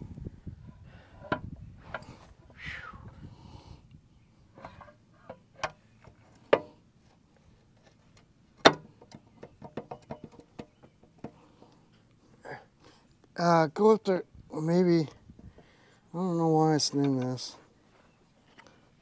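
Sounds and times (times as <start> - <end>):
metal knocks and clicks: 8.6 - 11.4.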